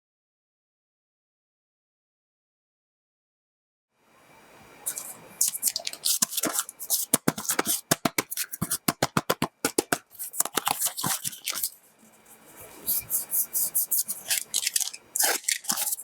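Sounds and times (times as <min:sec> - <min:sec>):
hands clicking and tapping object: 0:04.9 - 0:11.8, 0:12.9 - 0:16.0.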